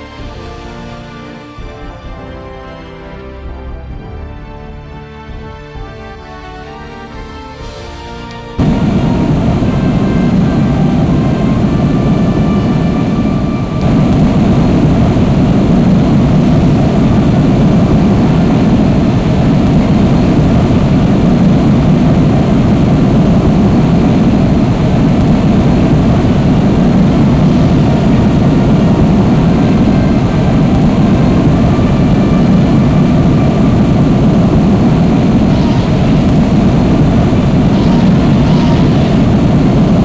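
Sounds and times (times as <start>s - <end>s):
faint whining tones: 8.6s - 40.0s
jet engines rumbling: 8.6s - 40.0s.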